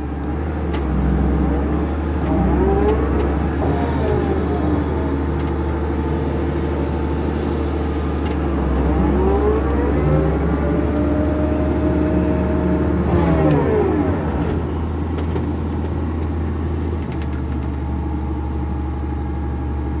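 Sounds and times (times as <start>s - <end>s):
vehicle engine revving: 0.7s - 15.4s.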